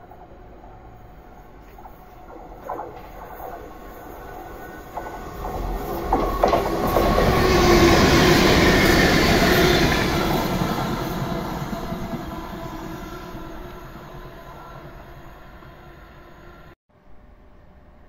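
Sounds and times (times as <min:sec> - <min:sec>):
train passing rush: 0:00.0 - 0:16.8
wheels clicking over rail joints: 0:00.2 - 0:12.7.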